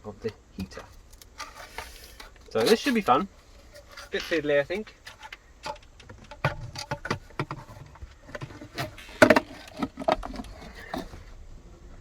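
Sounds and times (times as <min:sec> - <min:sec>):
knocks clicks and rustling: 0:04.1 - 0:11.2.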